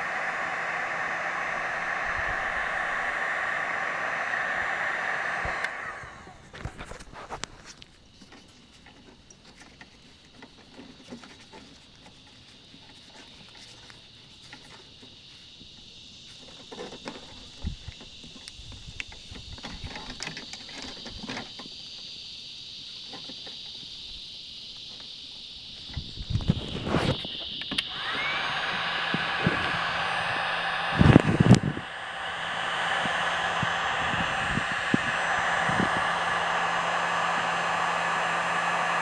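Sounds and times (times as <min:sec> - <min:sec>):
heat gun blowing: 0:00.0 - 0:06.7, 0:26.6 - 0:39.0.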